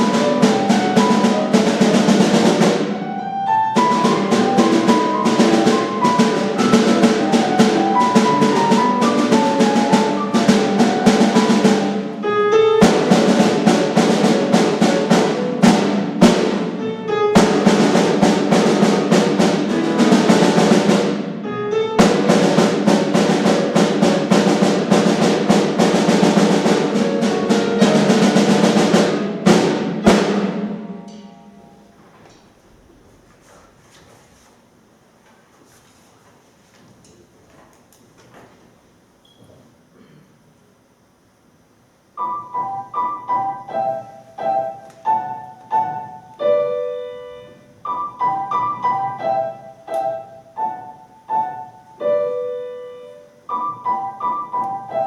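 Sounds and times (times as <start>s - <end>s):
fast drum and percussion strikes: 0.0s - 16.8s, 17.4s - 21.4s, 22.0s - 31.8s
held pitched instrumental notes: 0.0s - 32.0s.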